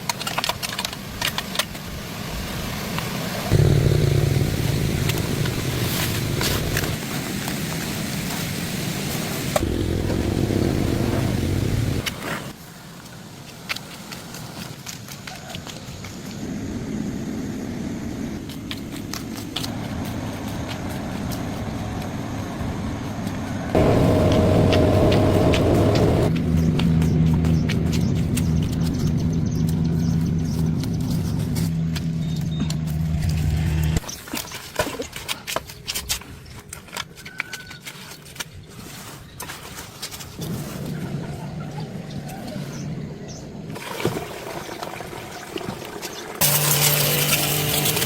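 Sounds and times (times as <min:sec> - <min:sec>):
steady motor hum: 0:03.5 - 0:07.0, 0:09.6 - 0:12.2, 0:21.5 - 0:34.0
engine rumbling: 0:03.5 - 0:07.5, 0:09.2 - 0:12.6, 0:19.5 - 0:34.1.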